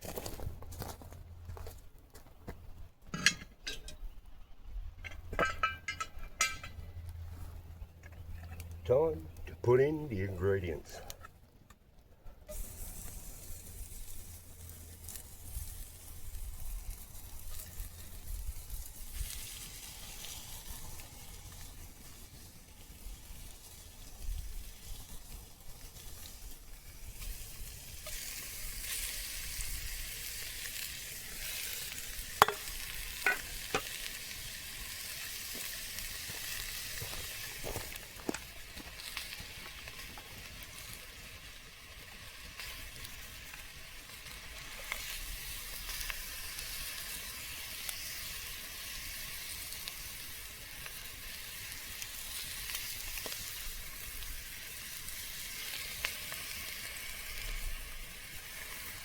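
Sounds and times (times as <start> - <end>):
food sizzling in a pot: 12.5 - 59.0
utensil clicking against pot: 32.4 - 32.7.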